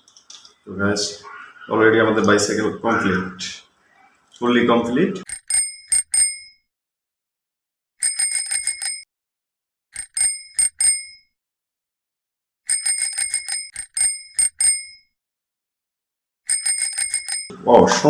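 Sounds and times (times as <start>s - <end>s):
bicycle bell ringing: 5.3s - 6.6s, 8.0s - 9.1s, 10.0s - 11.3s, 12.7s - 15.1s, 16.5s - 17.5s.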